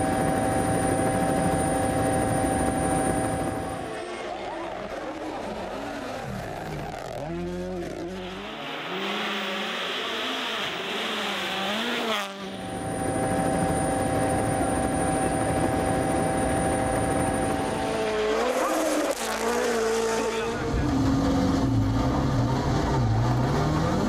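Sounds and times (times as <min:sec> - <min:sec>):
rally car engine revving: 0:03.8 - 0:13.7, 0:16.9 - 0:24.0.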